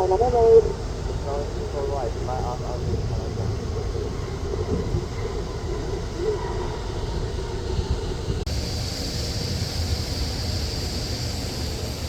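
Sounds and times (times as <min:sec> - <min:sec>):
jet engines rumbling: 0:00.0 - 0:12.0
wind on microphone: 0:00.0 - 0:12.0
bright hiss: 0:07.7 - 0:12.0.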